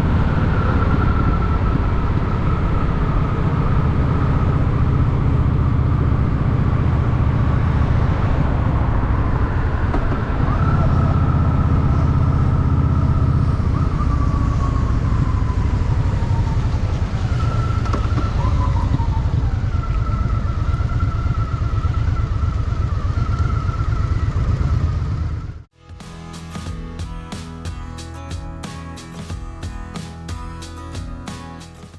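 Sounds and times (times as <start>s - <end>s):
high whine sliding down: 0.0s - 24.6s.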